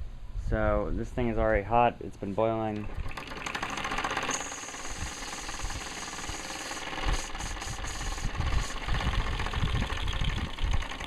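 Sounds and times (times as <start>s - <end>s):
steam hissing: 3.4s - 10.8s.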